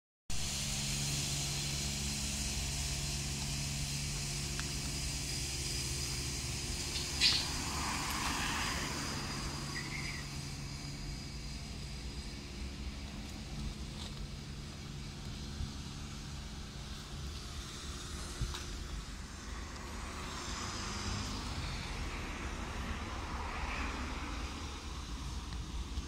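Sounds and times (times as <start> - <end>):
outdoor background noise: 0.3 - 26.0
vehicle engine idling: 0.3 - 26.0
bird chirp: 6.8 - 7.6, 9.7 - 10.4.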